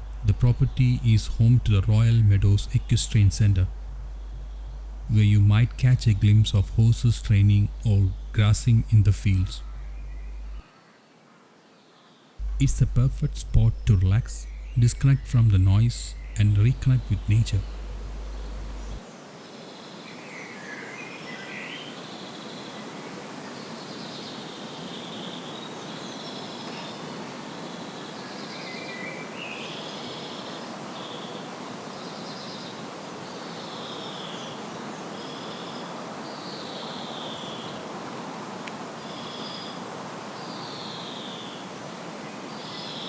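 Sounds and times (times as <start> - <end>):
birds chirping: 0.0 - 10.6, 12.4 - 19.0
steady outdoor hiss: 0.0 - 43.0.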